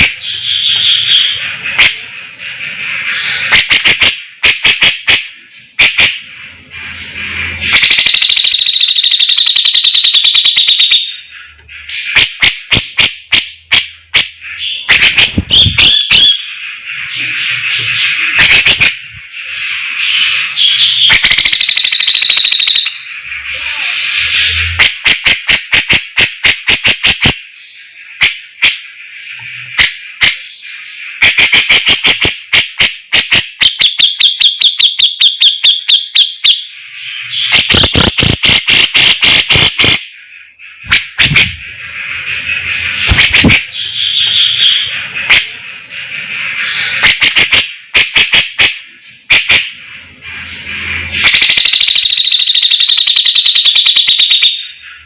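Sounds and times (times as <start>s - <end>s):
bird singing sharp trills: 0.1s - 2.1s, 14.0s - 23.3s, 40.1s - 45.2s.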